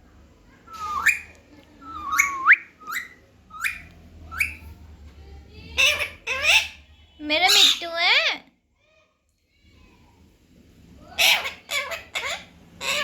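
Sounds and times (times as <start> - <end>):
baby parrot calling: 0.7 - 1.3, 1.9 - 4.7, 5.7 - 8.0, 11.0 - 13.0.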